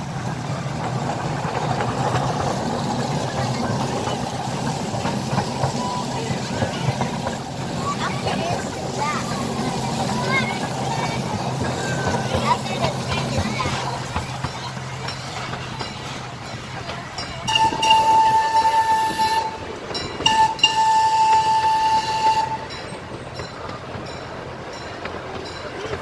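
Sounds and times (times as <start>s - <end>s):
train running on track: 0.0s - 26.0s
train whistle blasts: 17.5s - 22.8s.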